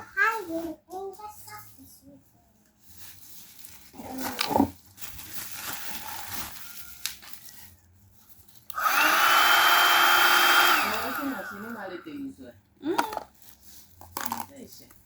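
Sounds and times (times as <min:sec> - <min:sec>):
vacuum cleaner motor whining: 0:08.7 - 0:12.0.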